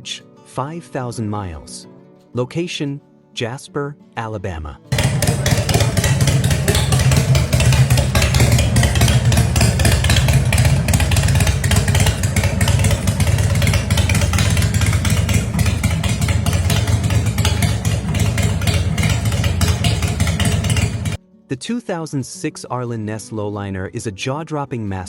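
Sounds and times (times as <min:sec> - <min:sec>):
motorcycle engine running: 0:04.9 - 0:21.2.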